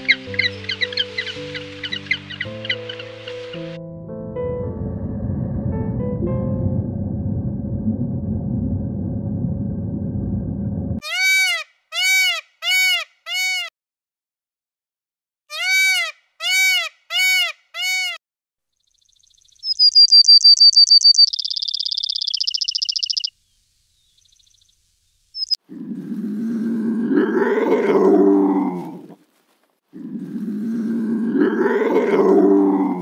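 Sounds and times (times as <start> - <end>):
low rumbling noise: 3.9 - 11.0
animal calls rising and falling: 11.0 - 13.7, 15.5 - 18.2, 19.6 - 23.3, 25.4 - 29.2, 30.0 - 33.0.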